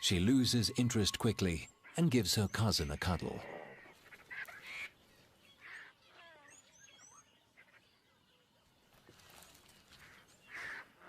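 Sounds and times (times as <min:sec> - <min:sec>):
bird chirps: 0:00.0 - 0:11.0.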